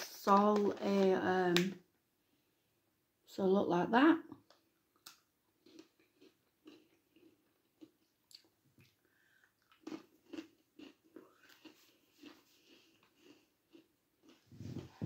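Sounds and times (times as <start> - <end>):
person crunching and chewing: 4.9 - 15.0.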